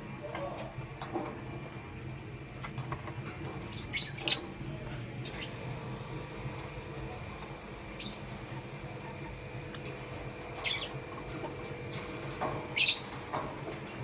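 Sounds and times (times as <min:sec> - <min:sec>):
lovebirds chirping: 0:03.4 - 0:06.3, 0:07.1 - 0:09.5, 0:10.4 - 0:11.5, 0:12.6 - 0:13.2.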